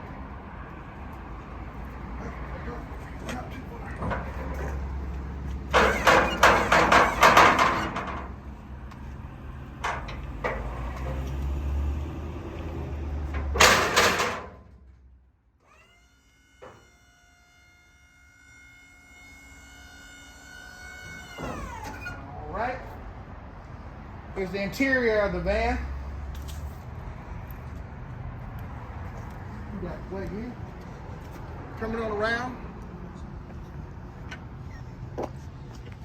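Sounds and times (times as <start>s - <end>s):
metal truck door rattling: 5.7s - 8.4s, 13.2s - 14.6s.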